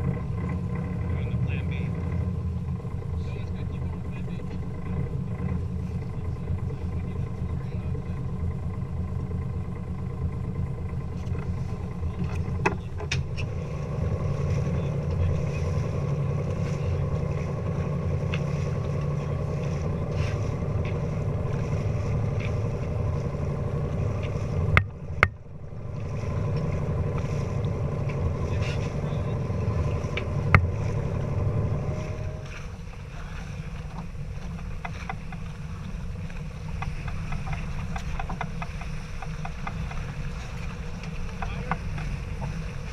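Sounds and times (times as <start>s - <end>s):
boat engine humming: 0.0s - 42.9s.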